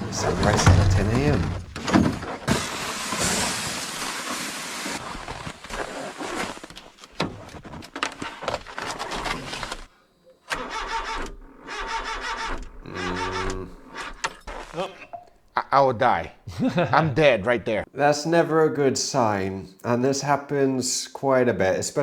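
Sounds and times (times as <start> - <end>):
truck engine cranking: 0.0 - 3.5, 10.5 - 15.4.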